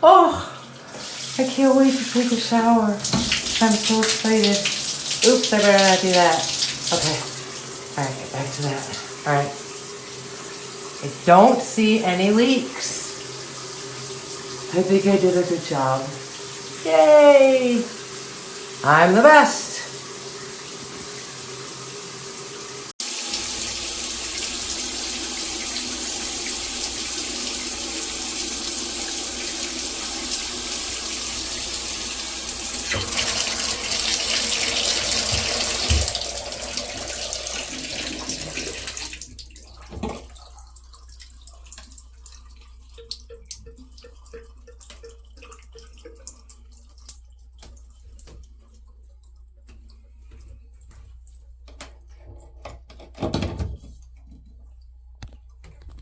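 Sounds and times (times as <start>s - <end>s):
faint water drips: 0.4s - 9.7s, 32.2s - 52.2s
shower head spraying water: 0.9s - 13.1s, 17.6s - 39.2s.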